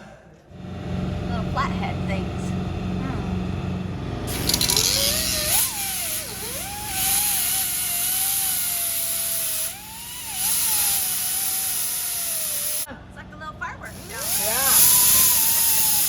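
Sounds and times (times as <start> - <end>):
grinder cutting metal: 4.3 - 12.9, 13.9 - 16.0.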